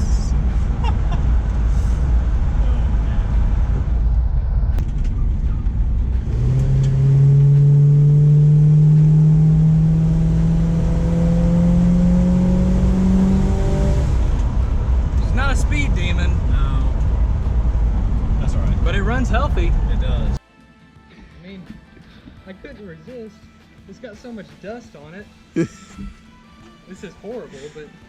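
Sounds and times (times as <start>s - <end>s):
car engine rumbling and accelerating: 0.0s - 20.4s.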